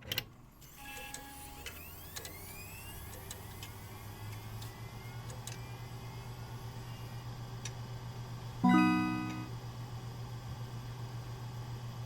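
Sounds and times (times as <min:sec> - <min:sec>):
small electric motors whining: 0:00.6 - 0:07.2.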